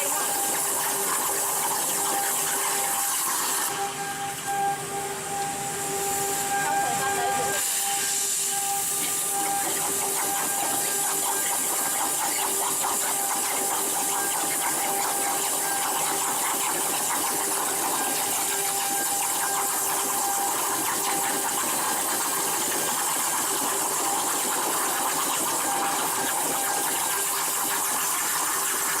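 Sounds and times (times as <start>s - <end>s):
plasma torch hissing: 0.0s - 3.8s, 5.9s - 29.0s
constant tone: 0.0s - 21.5s.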